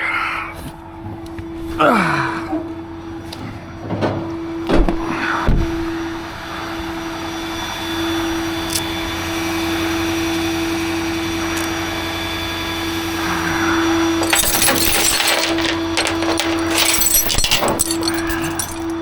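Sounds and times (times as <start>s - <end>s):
truck engine whine: 0.8s - 19.0s
rattling and clanking: 3.8s - 5.1s, 14.2s - 19.0s.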